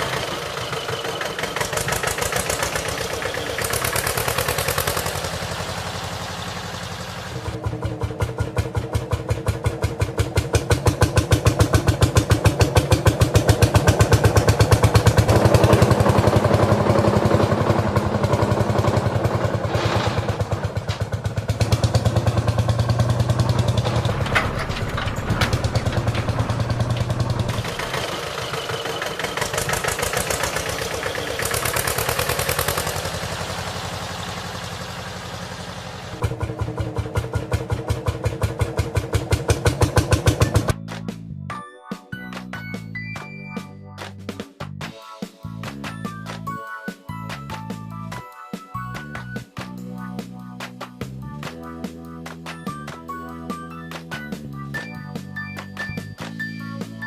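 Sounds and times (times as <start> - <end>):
tractor engine chugging: 0.0 - 40.8.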